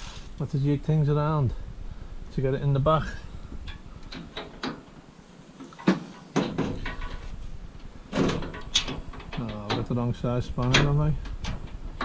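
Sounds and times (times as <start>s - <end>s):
metal clinks and knocks: 5.8s - 7.4s, 8.1s - 9.9s.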